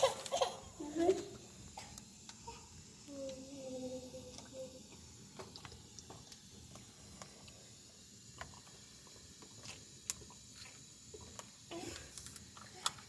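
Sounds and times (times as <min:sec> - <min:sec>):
faint irregular clicks and ticks: 0:01.7 - 0:13.0.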